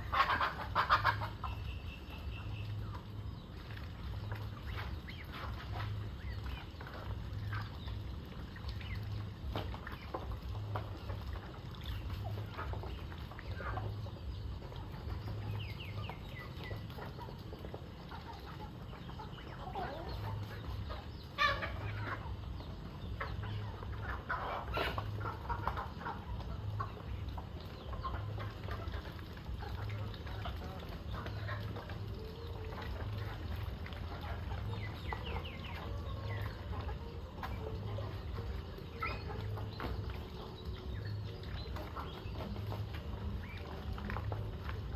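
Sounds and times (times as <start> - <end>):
chicken squawk: 0.0 - 1.6, 19.5 - 22.4, 23.2 - 26.3
chickens clucking: 0.0 - 44.9
low steady hum: 0.0 - 44.9.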